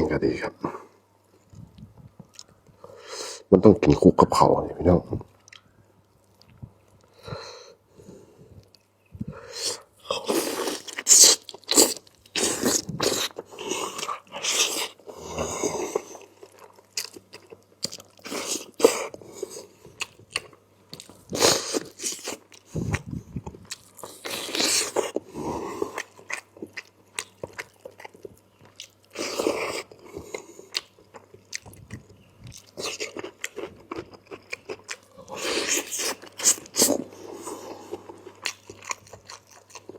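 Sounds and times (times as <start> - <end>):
chewing and biting food: 15.7 - 39.9.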